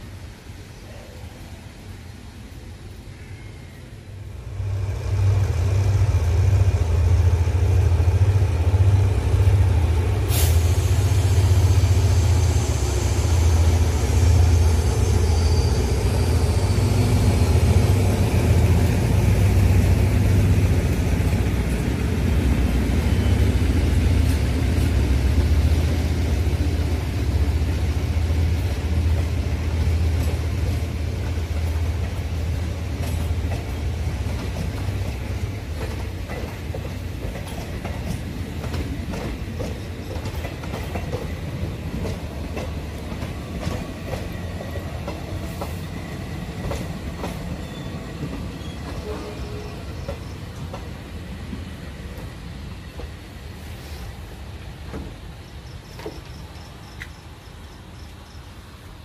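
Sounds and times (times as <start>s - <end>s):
train carriages rumbling on track: 4.4s - 58.3s
faint high squeal: 14.4s - 17.4s.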